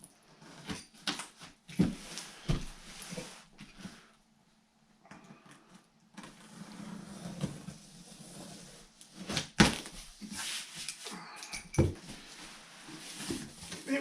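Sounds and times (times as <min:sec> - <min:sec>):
cardboard box rustling and scraping: 0:12.2 - 0:13.9.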